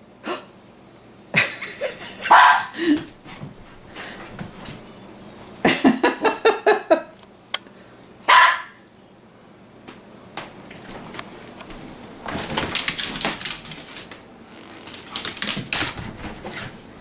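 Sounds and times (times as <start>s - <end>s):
dog barking: 2.2s - 2.8s, 8.3s - 8.8s.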